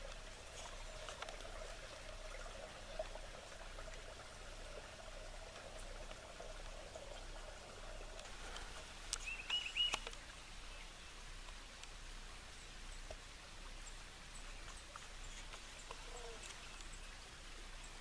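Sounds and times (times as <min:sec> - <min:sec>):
faint outdoor hush: 0:00.0 - 0:18.0
bird calling: 0:09.2 - 0:10.1.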